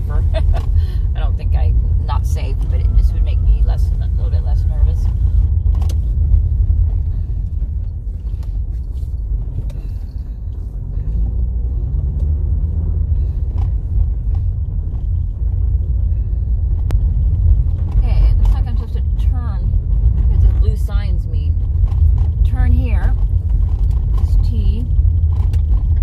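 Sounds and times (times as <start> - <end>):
car engine and tyres rumbling: 0.0 - 26.0.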